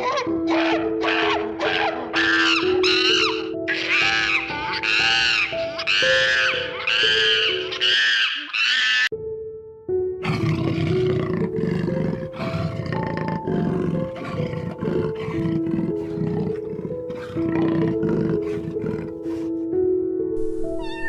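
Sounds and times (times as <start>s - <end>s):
background music with held notes: 0.0s - 8.2s, 9.1s - 21.0s
lion roaring: 10.2s - 19.5s.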